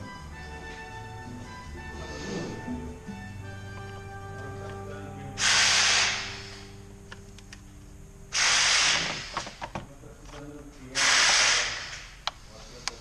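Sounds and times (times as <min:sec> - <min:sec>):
hissing blasts from pressurised nozzle: 0:05.4 - 0:06.6, 0:08.3 - 0:09.4, 0:11.0 - 0:12.1.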